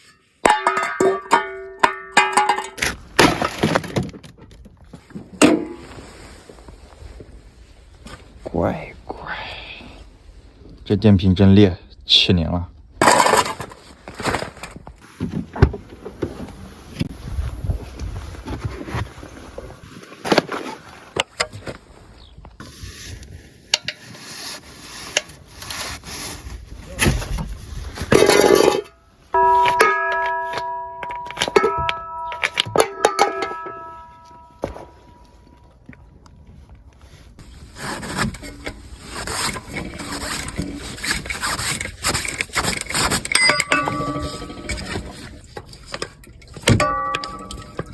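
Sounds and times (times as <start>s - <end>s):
metal clattering: 0.0s - 4.2s, 28.1s - 35.5s, 42.1s - 47.9s
plucked string music: 29.4s - 35.5s.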